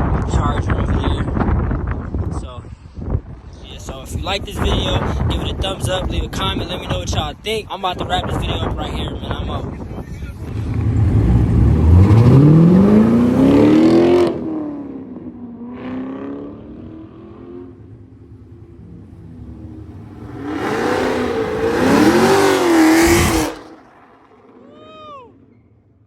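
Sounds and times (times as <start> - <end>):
car engine revving: 10.3 - 24.7.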